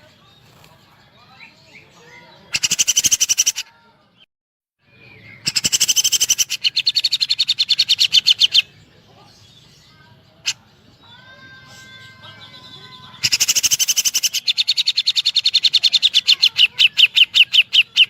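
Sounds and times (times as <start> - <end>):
bird singing rapid rattling bursts: 2.5 - 3.6, 5.4 - 8.6, 13.2 - 18.0.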